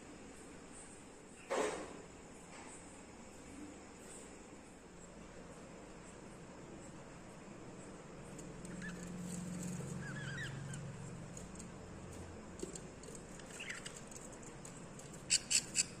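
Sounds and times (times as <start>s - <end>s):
budgies chirping: 9.9s - 11.0s, 13.4s - 14.2s, 15.2s - 16.0s
sharp high bird calls: 10.0s - 10.9s.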